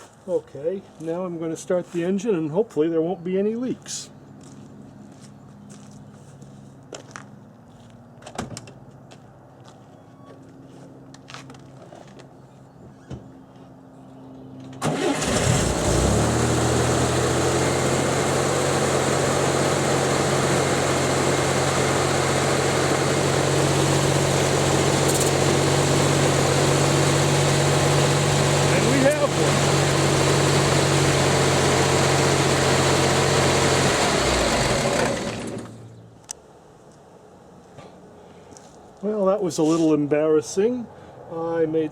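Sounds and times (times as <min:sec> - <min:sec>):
car engine starting and idling: 0:14.8 - 0:36.0.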